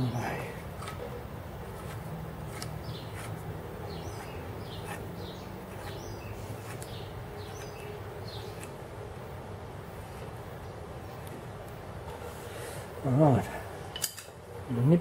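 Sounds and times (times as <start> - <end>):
low background hum: 0.0 - 15.0
bird chirping: 2.5 - 8.8.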